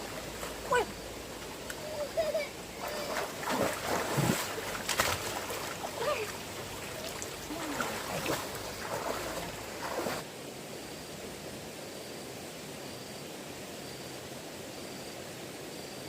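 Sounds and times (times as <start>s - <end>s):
water splashing and sloshing: 0.0s - 10.3s
steady hiss: 0.0s - 16.0s.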